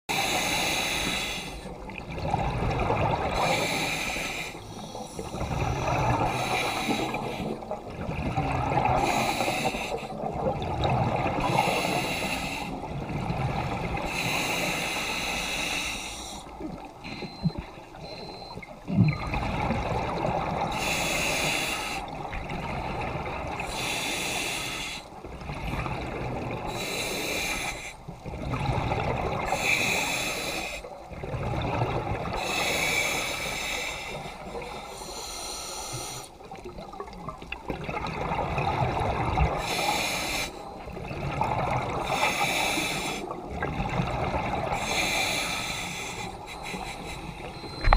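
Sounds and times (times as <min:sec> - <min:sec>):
diver breathing through regulator: 0:00.1 - 0:01.7, 0:03.3 - 0:07.8, 0:08.8 - 0:10.2, 0:11.4 - 0:12.9, 0:14.0 - 0:18.5, 0:20.6 - 0:22.2, 0:23.6 - 0:25.2, 0:26.7 - 0:28.1, 0:29.4 - 0:31.0, 0:32.3 - 0:36.4, 0:39.4 - 0:40.8, 0:41.9 - 0:43.4, 0:44.6 - 0:47.9.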